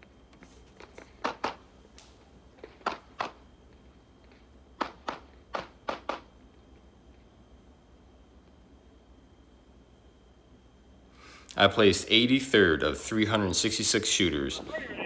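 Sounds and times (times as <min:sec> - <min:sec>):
pistol shots in double-taps: 0:02.6 - 0:03.4, 0:04.8 - 0:06.4.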